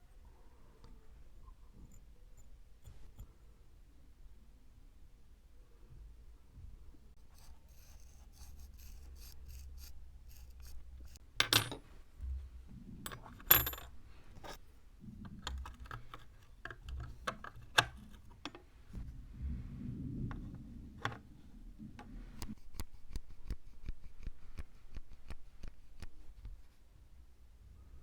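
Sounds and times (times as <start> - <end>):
small steel parts clinking: 11.4 - 11.9, 13.1 - 14.6.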